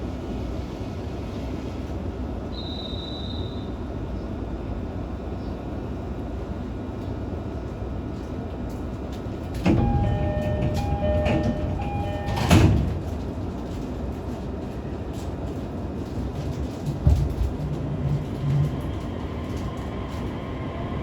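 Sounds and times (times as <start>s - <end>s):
train humming: 3.6s - 21.0s
sliding doors shutting thud: 9.6s - 13.2s
two-tone door chime: 9.7s - 13.2s.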